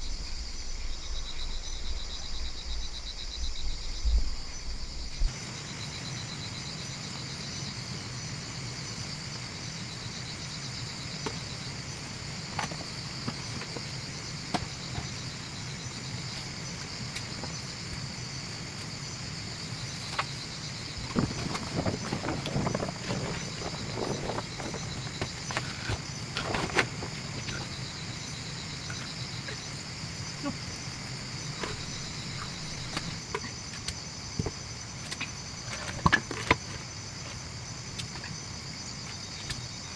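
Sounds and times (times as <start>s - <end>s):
insects chirping: 0.0s - 39.9s
rustling and knocks: 11.2s - 19.0s, 19.8s - 28.0s.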